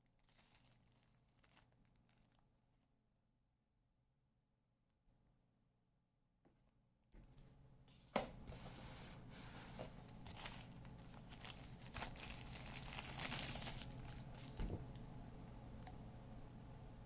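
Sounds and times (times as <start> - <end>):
packaging crinkling and rustling: 0.0 - 2.5, 9.4 - 15.0.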